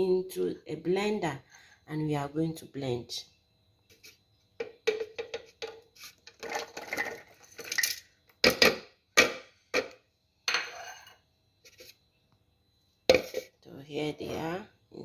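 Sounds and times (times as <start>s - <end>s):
utensils and dishes clattering: 4.6s - 8.8s.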